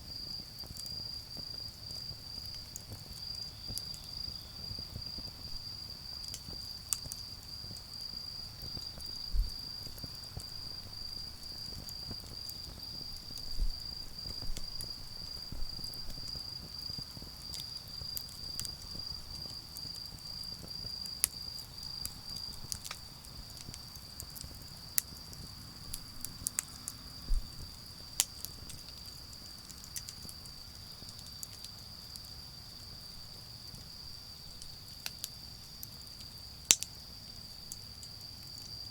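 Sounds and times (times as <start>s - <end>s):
fire crackling and popping: 0.0s - 38.9s
insects trilling: 0.1s - 38.9s
soft low thumps: 9.3s - 9.6s.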